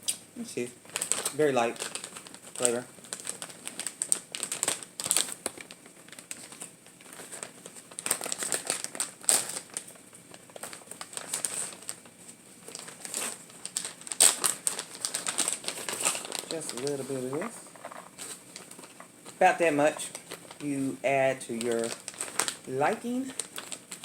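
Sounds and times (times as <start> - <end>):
plastic packaging crinkling: 0.6 - 24.0.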